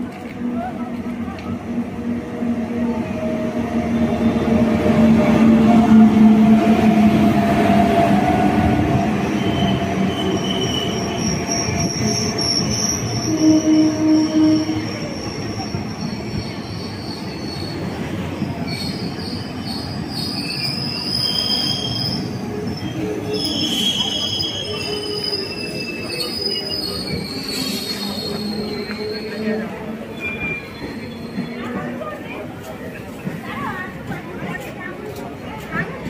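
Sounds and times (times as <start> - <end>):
train coaches rumbling past: 0.0 - 36.0
high-pitched wheel squeal: 9.4 - 17.9, 18.5 - 31.7.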